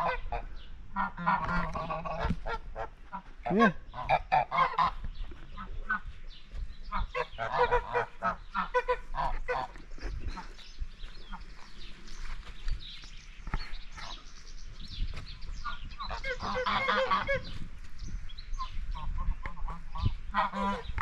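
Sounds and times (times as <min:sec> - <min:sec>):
geese honking: 0:00.0 - 0:06.1, 0:06.9 - 0:10.6, 0:15.6 - 0:17.6, 0:18.6 - 0:21.0.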